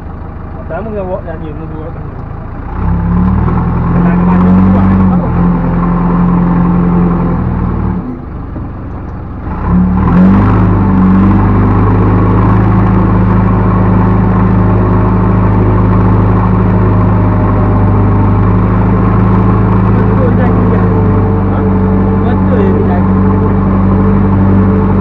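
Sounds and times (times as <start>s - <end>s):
diesel engine revving: 0.0s - 25.0s.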